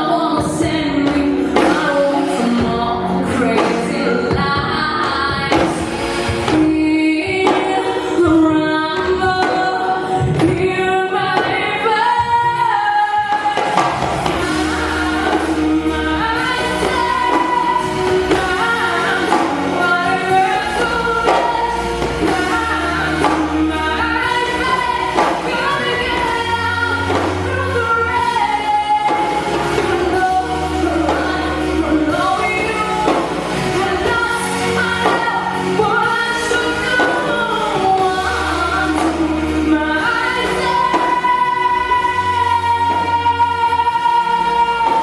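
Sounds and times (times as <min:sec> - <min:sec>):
woman singing pop song: 0:00.0 - 0:45.0
sustained bass notes: 0:08.0 - 0:09.4.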